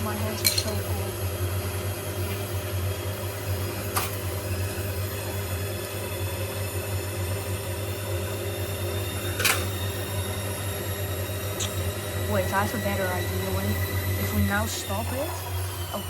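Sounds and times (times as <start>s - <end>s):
washing machine motor hum: 0.0s - 16.0s.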